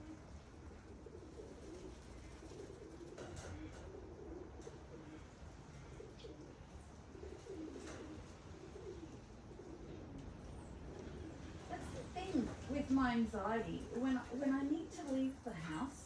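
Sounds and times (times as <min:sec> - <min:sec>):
pigeons cooing: 0:00.0 - 0:12.2.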